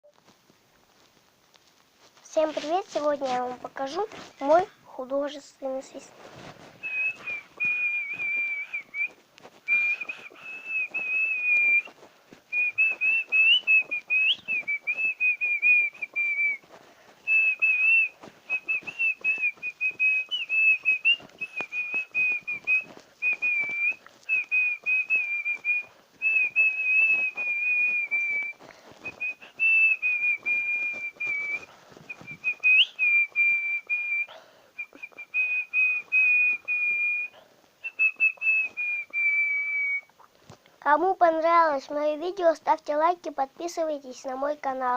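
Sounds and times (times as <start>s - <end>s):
person whistling a tune: 6.8s - 11.9s, 12.5s - 16.6s, 17.3s - 40.1s.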